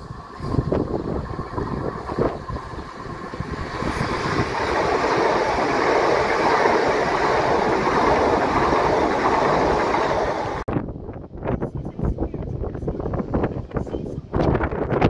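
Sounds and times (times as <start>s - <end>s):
train wheels rumbling on rail: 0.0s - 10.7s.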